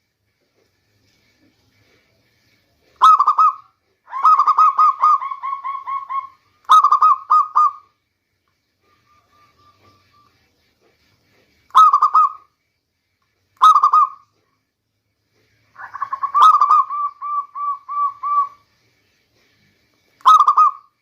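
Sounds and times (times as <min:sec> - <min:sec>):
dove cooing: 0:03.0 - 0:07.8, 0:15.8 - 0:18.6.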